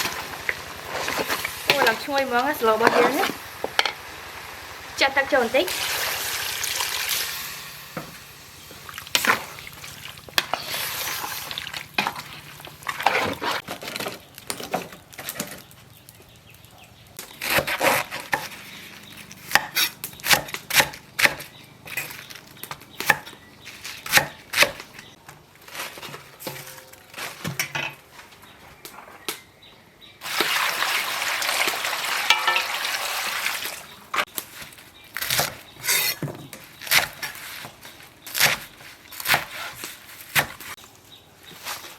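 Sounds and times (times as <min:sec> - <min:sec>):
food sizzling: 0:00.0 - 0:13.4, 0:30.2 - 0:34.2
utensil scraping a pan: 0:00.8 - 0:04.0, 0:10.3 - 0:14.2, 0:35.3 - 0:38.4.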